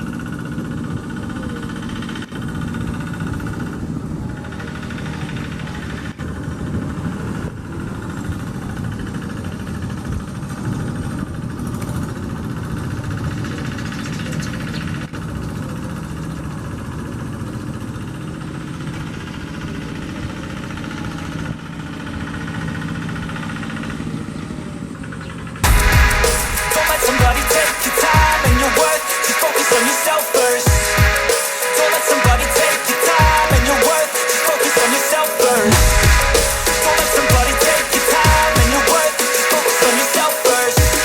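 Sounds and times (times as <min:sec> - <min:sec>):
tractor diesel engine running: 0:00.0 - 0:27.6.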